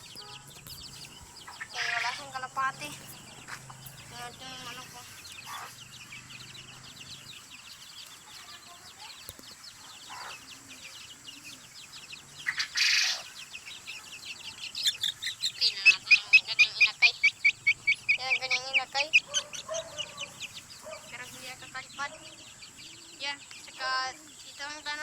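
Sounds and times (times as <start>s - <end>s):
rustle: 0.0s - 15.1s
chickens chirping: 0.0s - 25.0s.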